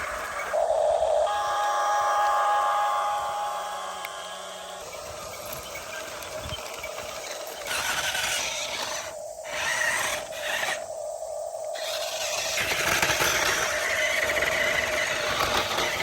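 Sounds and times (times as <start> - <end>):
toy electric motors whining: 1.2 - 10.9, 11.8 - 16.0
gears grinding: 3.0 - 10.9, 11.8 - 16.0.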